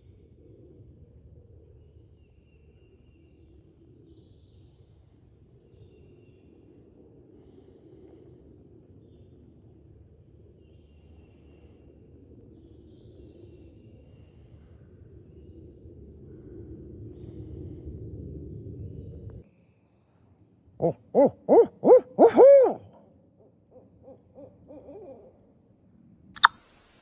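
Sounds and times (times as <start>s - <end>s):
faint songbird chirping: 26.4s - 27.0s.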